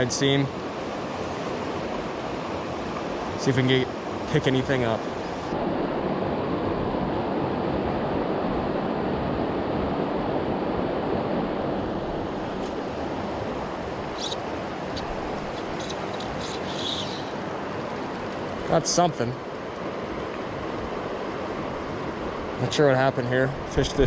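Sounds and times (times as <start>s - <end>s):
river water rushing: 0.5s - 6.8s, 8.0s - 22.7s
faint ticks: 15.3s - 18.7s.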